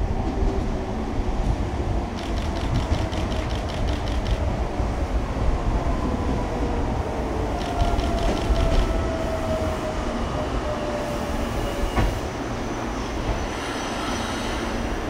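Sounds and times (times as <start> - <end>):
electric train rumbling and whining: 0.0 - 15.0
train wheel squeal: 7.6 - 15.0.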